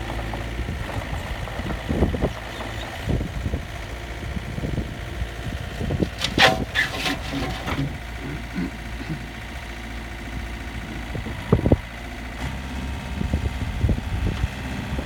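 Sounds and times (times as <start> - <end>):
excavator diesel engine running: 0.0 - 15.0
harsh scraping: 5.9 - 8.7.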